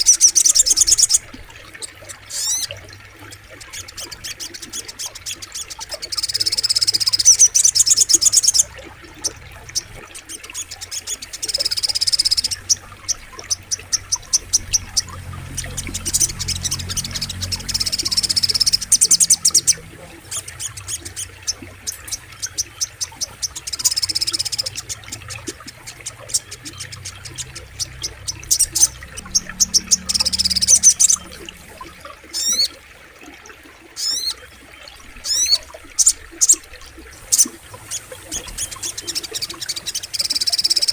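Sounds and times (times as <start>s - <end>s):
flowing river water: 0.0s - 40.9s
bird trilling song: 3.6s - 32.8s.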